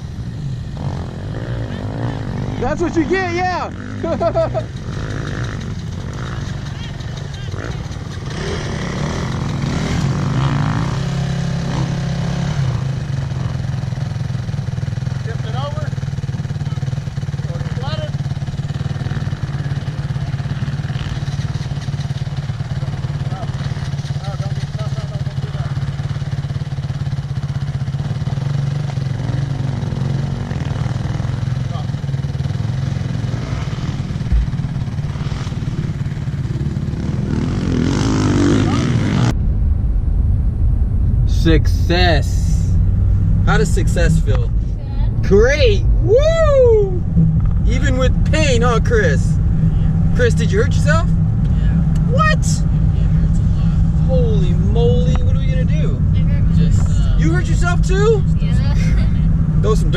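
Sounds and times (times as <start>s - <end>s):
dirt bike engine running: 0.0s - 39.5s, 41.3s - 59.9s
low thump: 34.2s - 36.1s.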